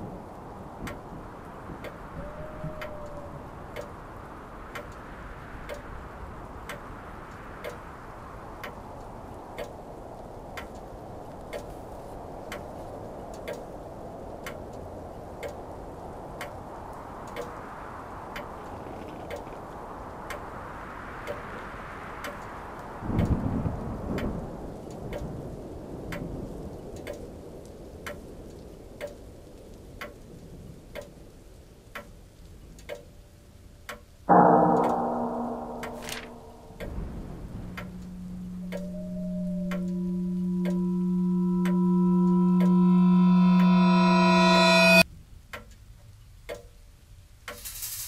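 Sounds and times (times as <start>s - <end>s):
low steady hiss: 0.0s - 48.0s
clock ticking: 33.9s - 45.0s.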